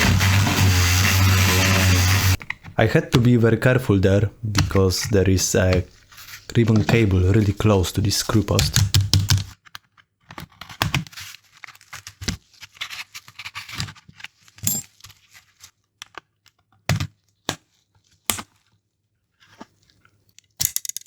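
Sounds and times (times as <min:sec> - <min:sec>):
plastic shell scraping and crackling: 0:00.0 - 0:09.5.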